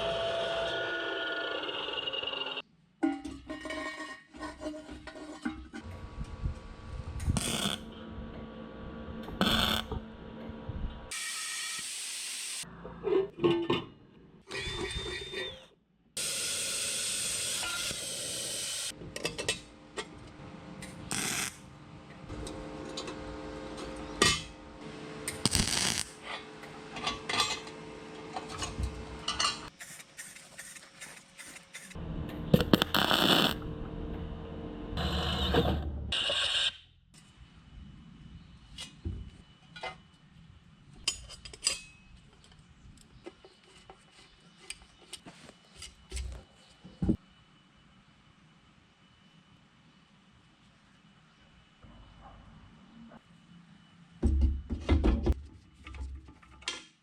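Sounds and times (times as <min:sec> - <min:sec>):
scraping or cutting noise: 0:32.6 - 0:33.7, 0:35.0 - 0:36.6.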